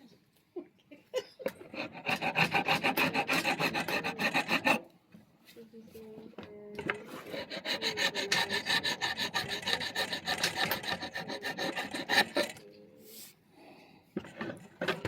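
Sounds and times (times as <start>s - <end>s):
rasp on wood: 1.6s - 4.9s, 6.8s - 12.6s.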